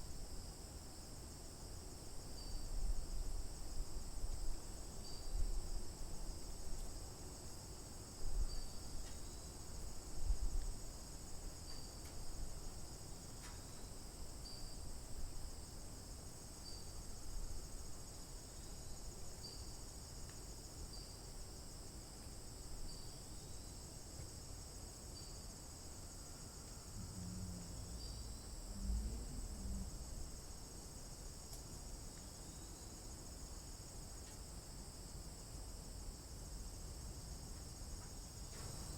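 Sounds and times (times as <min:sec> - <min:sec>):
insects chirring: 0:02.0 - 0:38.9
soft low thumps: 0:27.0 - 0:30.1.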